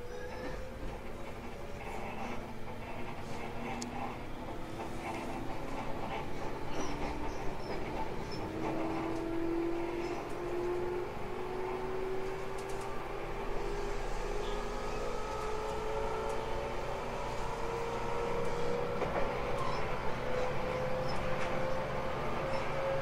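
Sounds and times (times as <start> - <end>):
wheels rumbling on rail: 0.0 - 23.0
traction motor whine rising: 8.3 - 23.0.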